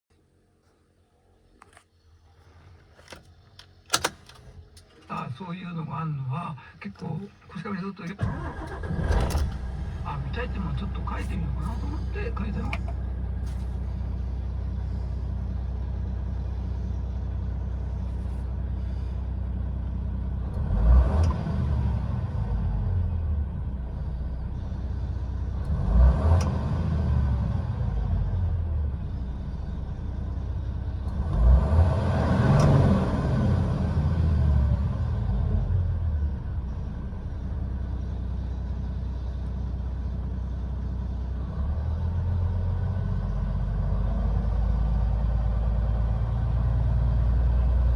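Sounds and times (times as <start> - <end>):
diesel truck engine idling: 2.2 - 47.9
engine revving: 8.1 - 13.8, 20.4 - 36.3.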